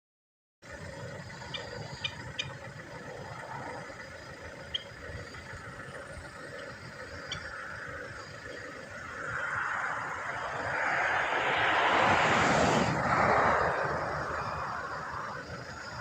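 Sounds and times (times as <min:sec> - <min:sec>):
low outdoor rumble: 0:00.6 - 0:16.0
high chirps: 0:01.2 - 0:10.6.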